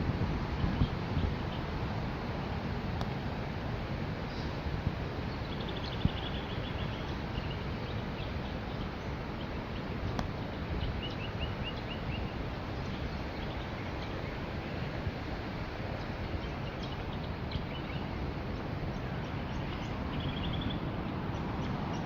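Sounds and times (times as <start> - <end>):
birds calling: 5.2 - 22.0.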